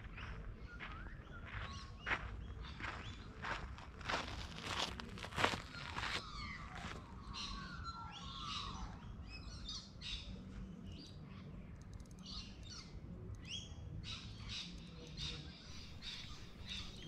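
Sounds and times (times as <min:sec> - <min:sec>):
high bird chirps: 0:15.7 - 0:17.0.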